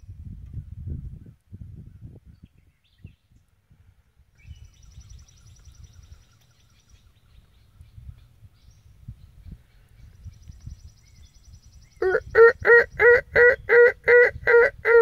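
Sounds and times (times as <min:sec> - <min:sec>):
wind buffeting microphone: 0:00.0 - 0:15.0
songbird trilling: 0:04.4 - 0:13.0.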